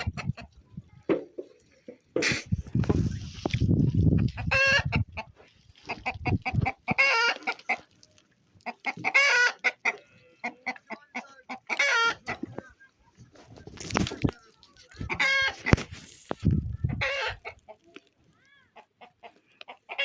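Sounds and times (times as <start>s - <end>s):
chickens clucking: 0.0s - 20.0s
short high-pitched chicken calls: 4.4s - 5.0s, 5.8s - 7.8s, 8.8s - 10.6s, 11.7s - 12.4s, 15.1s - 15.8s, 17.0s - 17.5s
low rustling rumble: 16.4s - 17.0s.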